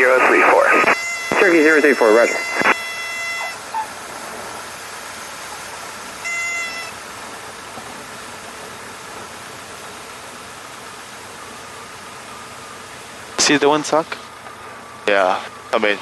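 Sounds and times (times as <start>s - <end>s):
engine and airflow drone: 0.0s - 16.0s
stall warning horn toot: 0.8s - 3.8s, 6.1s - 7.2s.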